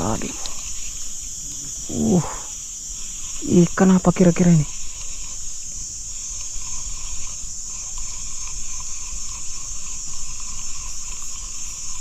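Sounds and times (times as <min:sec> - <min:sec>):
forest insects droning: 0:00.0 - 0:12.0.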